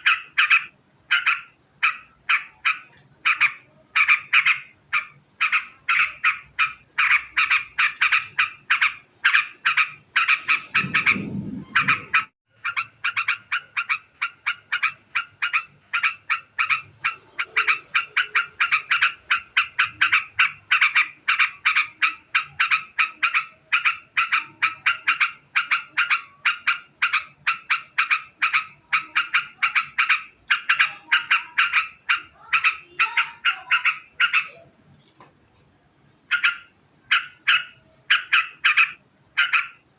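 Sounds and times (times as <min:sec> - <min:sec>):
bird chattering fast: 0:00.0 - 0:34.6, 0:36.3 - 0:39.9
short low rumble: 0:10.7 - 0:12.2.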